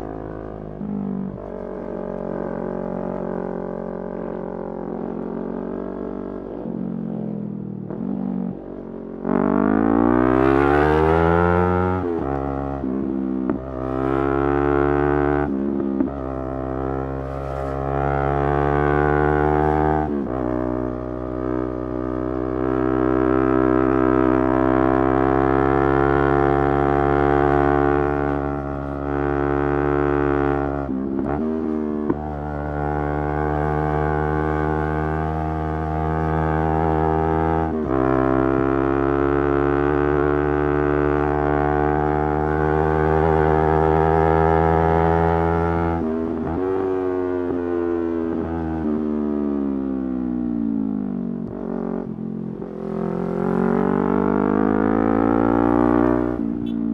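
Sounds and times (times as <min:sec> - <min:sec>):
motorcycle engine running: 0:49.6 - 0:56.9.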